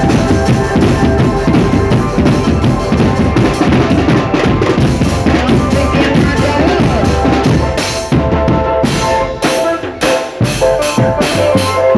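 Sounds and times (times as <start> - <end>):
marching drums beating: 0.0 - 11.9
sustained melody line: 0.0 - 11.9.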